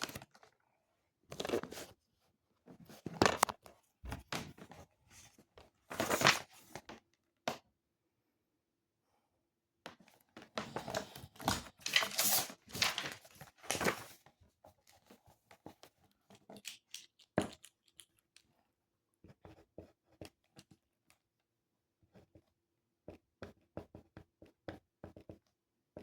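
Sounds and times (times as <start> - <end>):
paper rustling: 5.9 - 6.8, 10.7 - 14.2.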